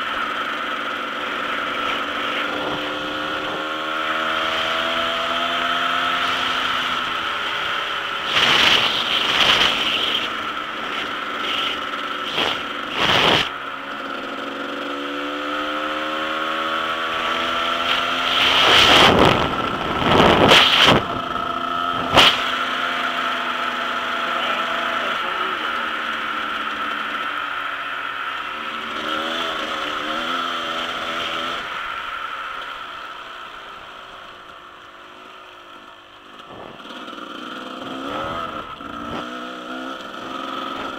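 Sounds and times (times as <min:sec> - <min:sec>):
dirt bike engine revving: 0:00.0 - 0:34.2, 0:36.3 - 0:40.9.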